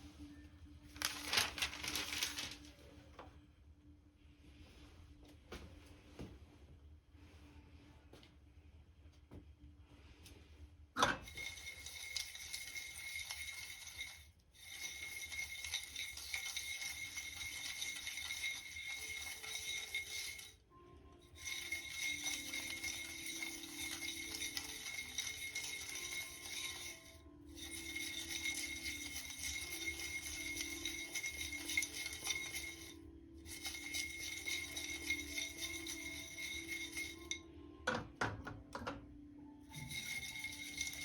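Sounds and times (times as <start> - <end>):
beans rattling in dry pan: 1.0 - 2.6, 11.3 - 20.5, 21.4 - 37.4, 39.7 - 41.0.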